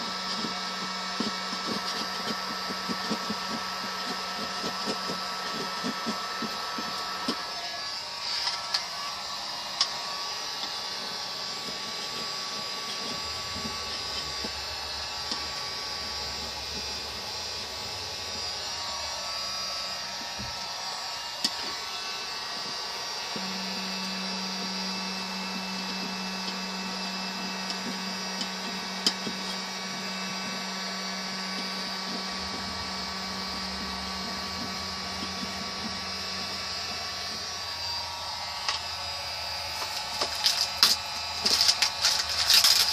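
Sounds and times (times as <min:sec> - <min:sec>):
electric blower whirring: 0:00.0 - 0:42.9.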